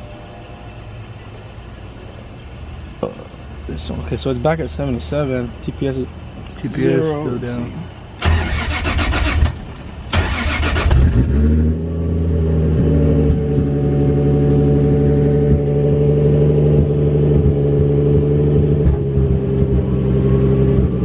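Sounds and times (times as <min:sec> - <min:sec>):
car engine starting and idling: 0:07.5 - 0:21.0.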